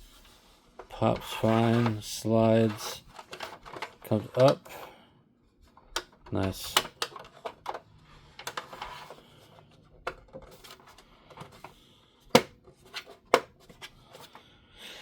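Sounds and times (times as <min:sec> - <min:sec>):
plastic rubbing: 0:00.0 - 0:04.8
plastic toy parts clicking: 0:05.9 - 0:07.8.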